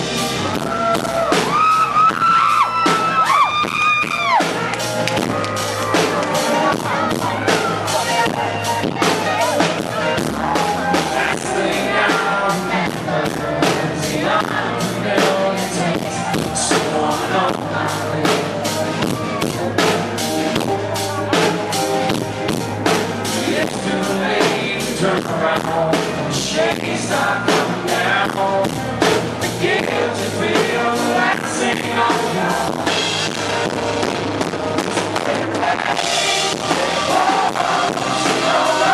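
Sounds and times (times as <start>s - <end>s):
live country-rock band: 0.0s - 38.9s
steady drum beat: 0.0s - 38.9s
person singing: 5.2s - 22.1s, 23.2s - 33.1s, 35.2s - 38.9s.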